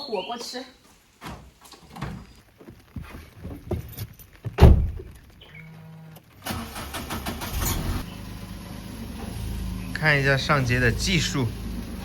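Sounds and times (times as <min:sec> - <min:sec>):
knocks and clunks in car: 0:03.5 - 0:05.2
car door slamming: 0:04.5 - 0:05.1.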